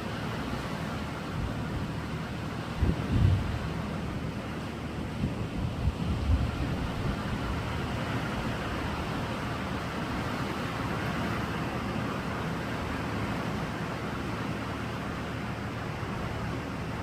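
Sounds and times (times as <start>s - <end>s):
waves breaking on shore: 0.0s - 17.0s
wind thumps on microphone: 2.8s - 3.6s.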